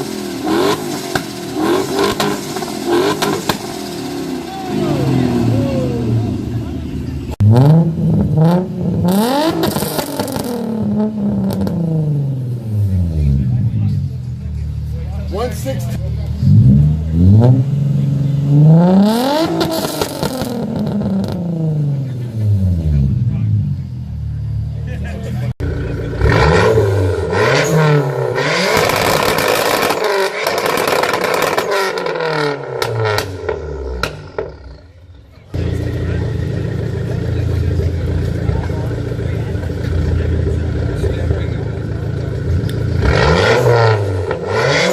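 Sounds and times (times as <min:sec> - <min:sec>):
car engine revving: 0:00.0 - 0:44.9
exhaust pops: 0:28.3 - 0:34.8.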